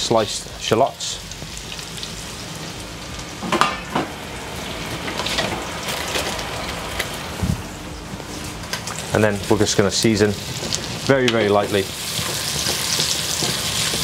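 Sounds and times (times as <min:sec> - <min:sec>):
shallots sizzling in butter: 0:00.1 - 0:03.1, 0:08.9 - 0:14.0.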